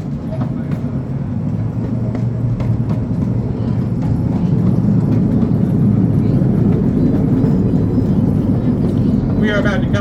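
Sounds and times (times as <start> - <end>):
small train rumbling on track: 0.0 - 10.0.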